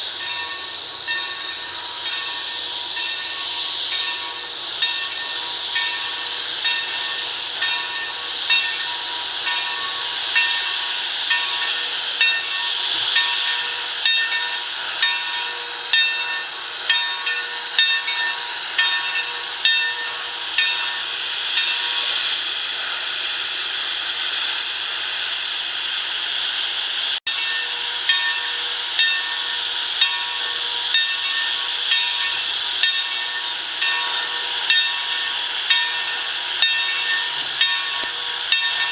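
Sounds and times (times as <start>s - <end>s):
steam locomotive hissing: 0.0s - 38.9s
locomotive regular beat: 27.4s - 38.9s.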